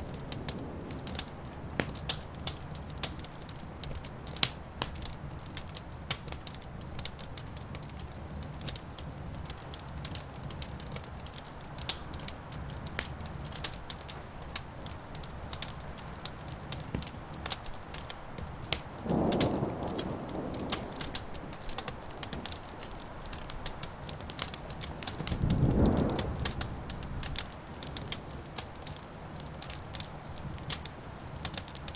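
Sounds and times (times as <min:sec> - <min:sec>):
wood fire crackling: 0:00.0 - 0:31.9
thunder rumble: 0:19.0 - 0:23.9, 0:25.0 - 0:27.5.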